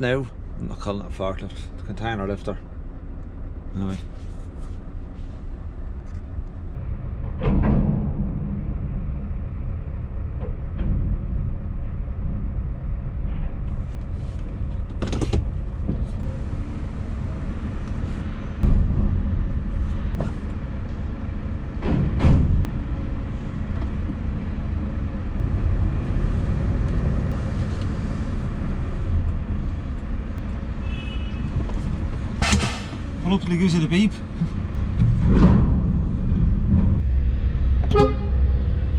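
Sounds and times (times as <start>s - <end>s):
loud clunks and knocks: 7.2s - 9.2s, 21.7s - 22.7s, 32.4s - 33.2s.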